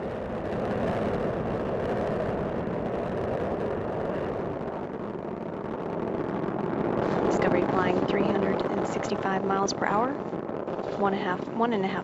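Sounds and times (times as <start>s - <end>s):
rocket engines rumbling: 0.0s - 12.0s.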